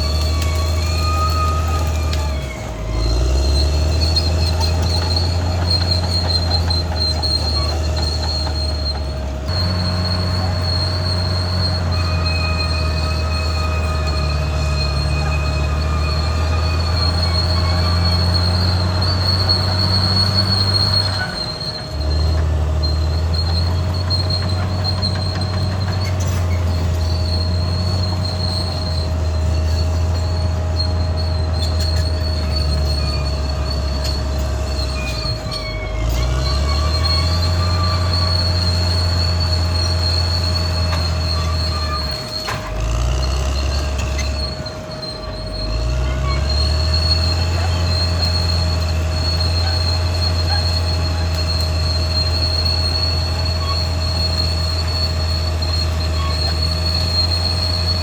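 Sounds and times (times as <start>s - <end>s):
bulldozer diesel engine droning: 0.0s - 58.0s
steel tracks squealing: 0.0s - 58.0s.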